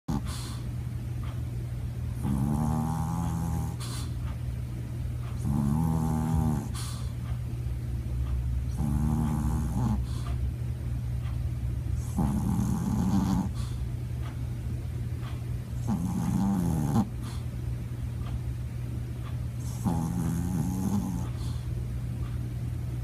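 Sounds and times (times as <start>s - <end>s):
dog snoring: 0.1s - 0.6s, 2.1s - 4.2s, 5.3s - 7.2s, 8.7s - 10.4s, 12.0s - 13.8s, 15.7s - 17.5s, 19.6s - 21.7s
steady low hum: 0.1s - 23.0s.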